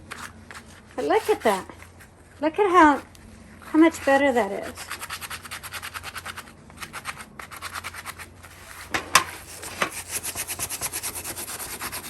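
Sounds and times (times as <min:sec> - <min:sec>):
wire brush scrubbing metal: 0:03.7 - 0:12.0.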